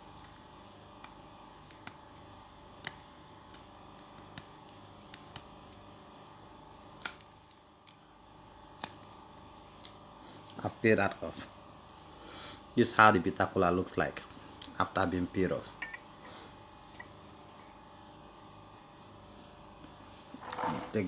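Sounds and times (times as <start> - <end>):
nut skin peeling clicks: 7.0 - 8.0, 8.8 - 9.0.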